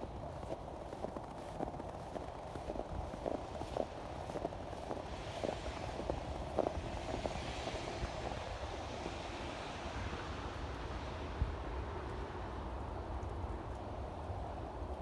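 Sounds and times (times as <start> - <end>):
footsteps crunching in snow: 0.2 - 7.7.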